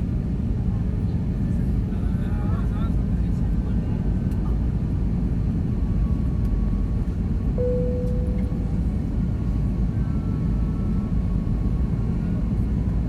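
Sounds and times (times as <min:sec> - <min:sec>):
airplane cabin roar: 0:00.0 - 0:13.0
short tone: 0:07.6 - 0:08.8.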